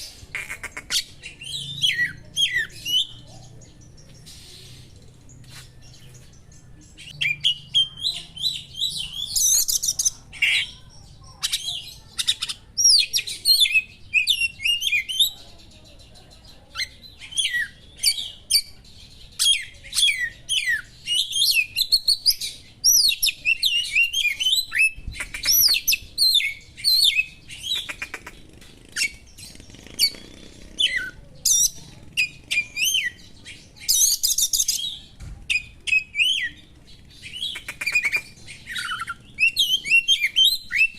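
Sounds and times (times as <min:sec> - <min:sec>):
songbird singing whistles and trills: 0:30.8 - 0:40.9.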